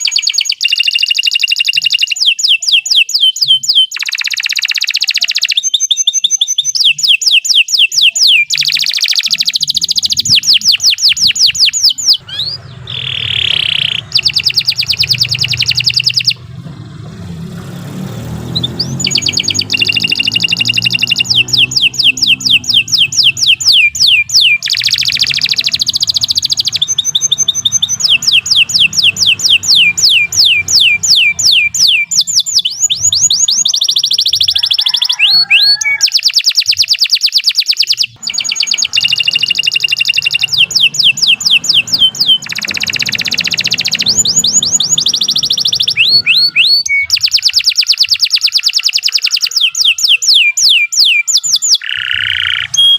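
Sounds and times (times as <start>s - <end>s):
canary singing trills: 0.0s - 52.9s.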